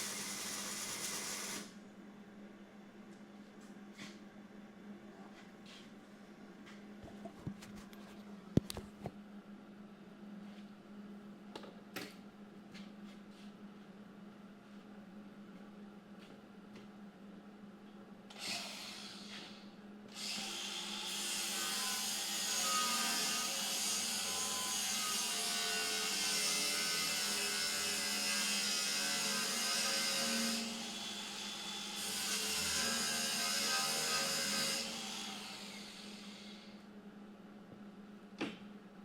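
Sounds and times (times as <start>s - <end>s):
power tool grinding metal: 20.4s - 36.6s.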